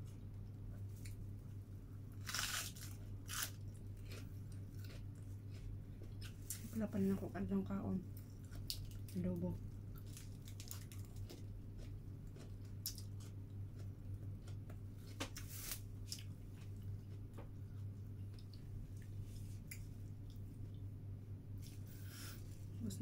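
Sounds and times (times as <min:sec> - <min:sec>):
steady low hum: 0:00.0 - 0:23.0
person chewing food: 0:02.2 - 0:06.7, 0:09.9 - 0:20.8.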